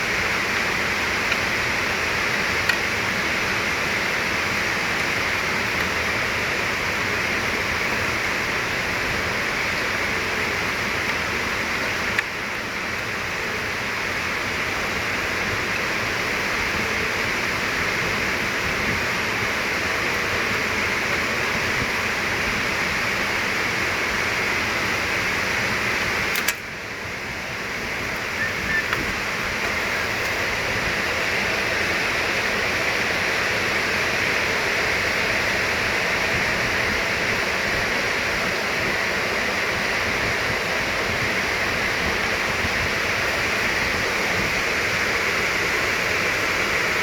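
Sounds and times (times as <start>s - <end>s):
steady hissing noise: 0.0s - 47.0s
sharp click: 26.3s - 26.7s.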